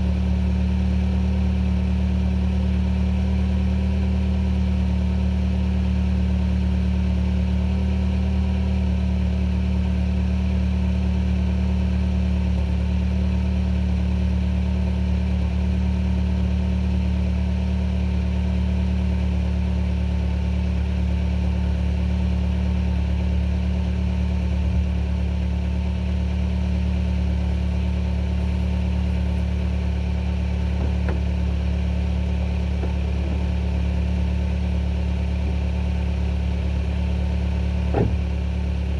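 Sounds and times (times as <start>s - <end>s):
car engine idling: 8.9s - 38.9s.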